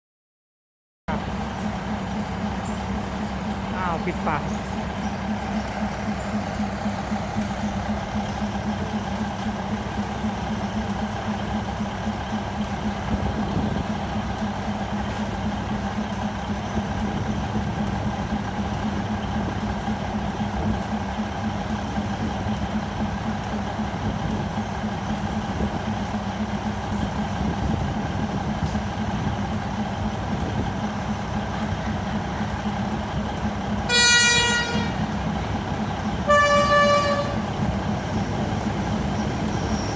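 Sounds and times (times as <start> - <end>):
diesel train engine humming: 1.1 - 39.9
train horn: 33.9 - 35.1, 36.2 - 37.5.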